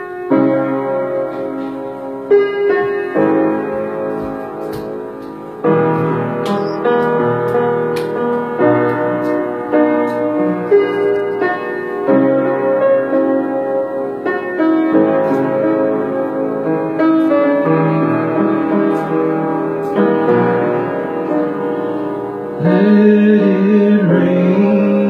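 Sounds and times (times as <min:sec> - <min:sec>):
piano playing slow chords: 0:00.0 - 0:25.0.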